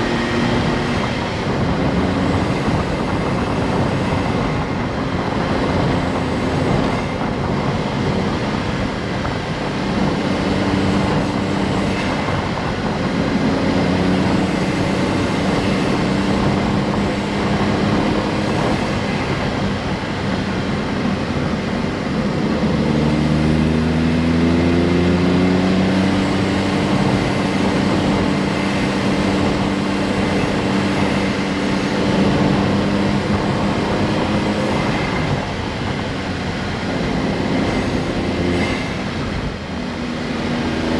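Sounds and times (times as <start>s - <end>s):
car engine droning: 0.0s - 40.9s.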